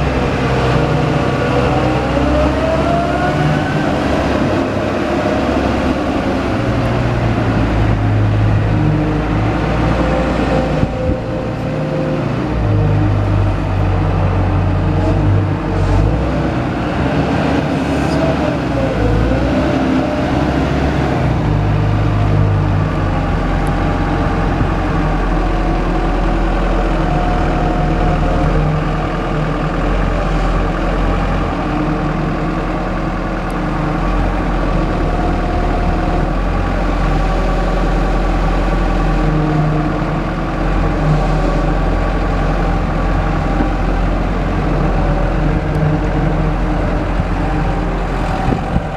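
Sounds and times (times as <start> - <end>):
diesel excavator engine running: 0.0 - 48.9.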